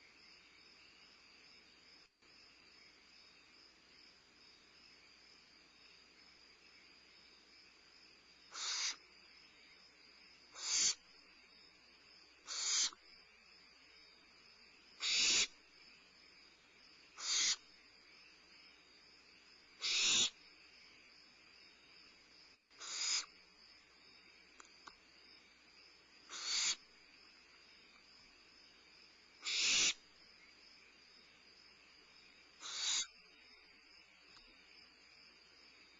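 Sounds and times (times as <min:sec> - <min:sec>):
crickets chirring: 0:00.0 - 0:35.9
owlets hissing screech: 0:19.8 - 0:20.3, 0:26.4 - 0:26.8, 0:29.5 - 0:30.0.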